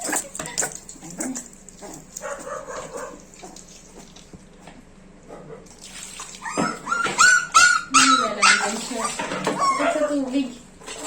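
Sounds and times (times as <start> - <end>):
puppy whimpering: 0.0 - 2.8, 6.4 - 10.4.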